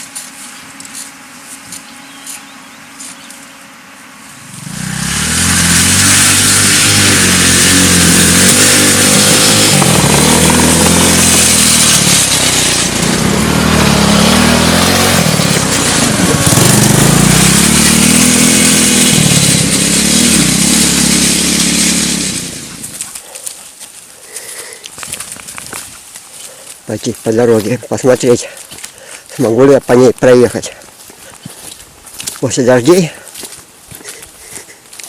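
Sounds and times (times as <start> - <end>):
small engine revving: 0.0 - 23.6.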